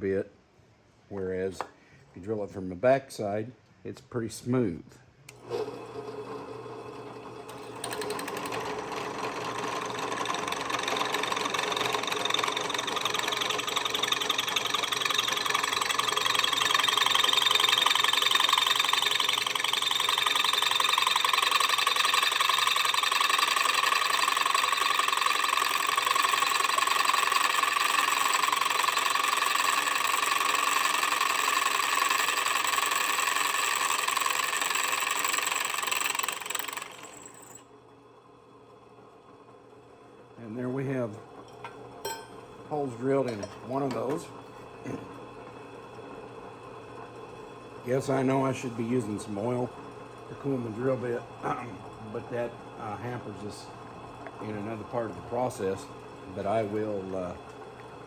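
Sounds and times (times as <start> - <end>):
electric drill cutting steel: 5.4 - 37.7.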